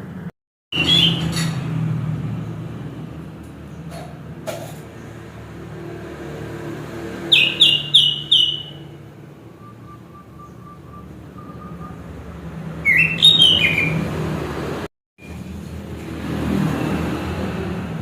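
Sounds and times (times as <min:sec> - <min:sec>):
thrush singing whistled notes: 0:00.7 - 0:01.4, 0:07.3 - 0:12.2, 0:12.8 - 0:14.1.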